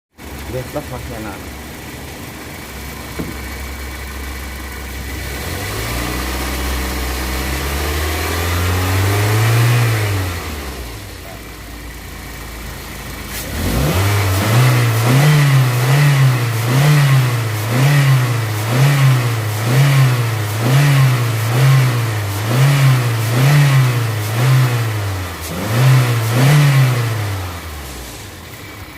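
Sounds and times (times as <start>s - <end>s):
car engine revving and blipping: 5.1s - 11.2s, 13.3s - 28.2s.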